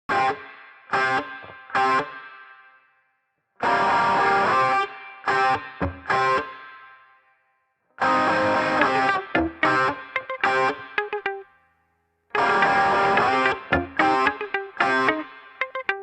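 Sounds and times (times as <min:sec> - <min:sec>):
distorted electric guitar chords: 0:03.6 - 0:06.6, 0:08.0 - 0:11.4, 0:12.4 - 0:16.0.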